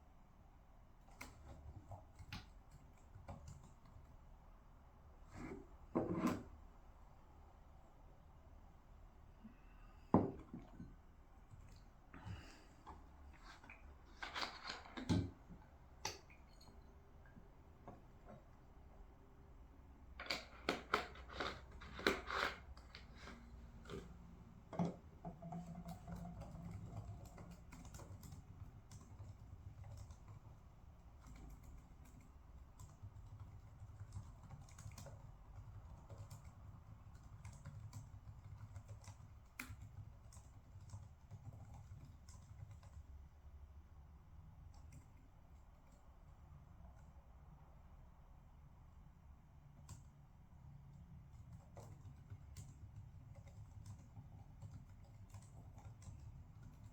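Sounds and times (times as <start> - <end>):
low room hum: 0.0 - 56.9
typing on computer keyboard: 1.0 - 4.2, 24.8 - 43.1, 51.1 - 56.9.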